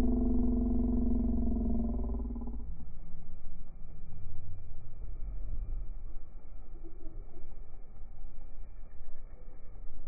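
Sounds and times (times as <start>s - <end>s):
car engine rumbling at low revs: 0.0s - 10.0s.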